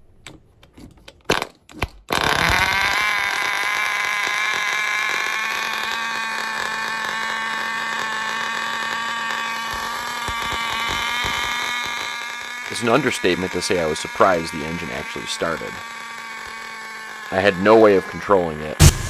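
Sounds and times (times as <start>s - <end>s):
model engine high-pitched whine: 2.1s - 19.0s.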